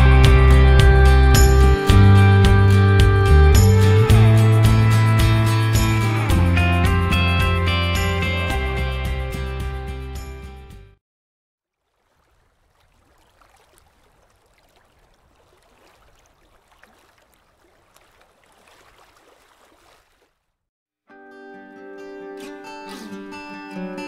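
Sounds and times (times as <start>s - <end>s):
guitar music: 0.0s - 10.7s, 21.1s - 24.0s
water trickling and gurgling: 11.7s - 20.5s.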